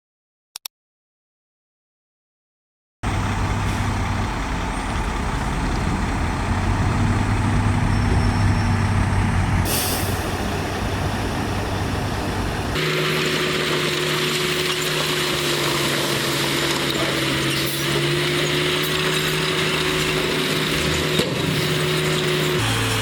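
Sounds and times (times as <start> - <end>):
heavy diesel machinery running: 3.0 - 23.0
air brake hiss: 9.6 - 10.5.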